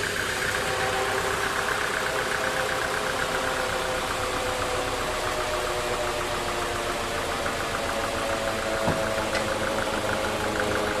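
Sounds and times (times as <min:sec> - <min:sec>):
sawmill machinery drone: 0:00.0 - 0:11.0
sawmill machinery knock: 0:08.3 - 0:10.3.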